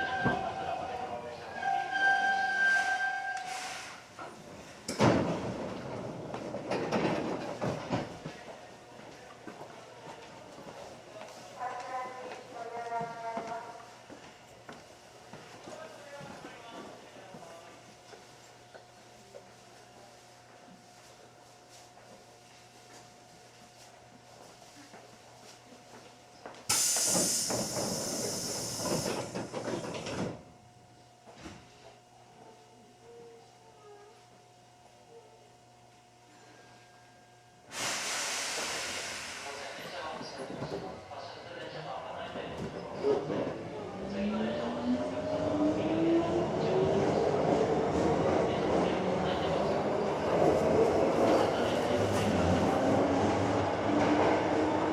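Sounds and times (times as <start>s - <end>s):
compressed air hiss of train doors: 3.4s - 4.1s, 26.7s - 29.9s, 37.7s - 39.8s.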